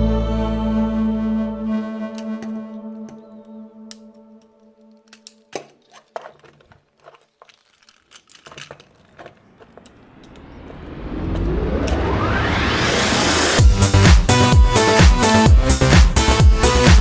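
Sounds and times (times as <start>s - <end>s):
electronic music: 0.0s - 5.0s, 10.6s - 17.0s
plastic packaging crinkling: 4.9s - 10.1s
rising whoosh: 9.8s - 14.5s.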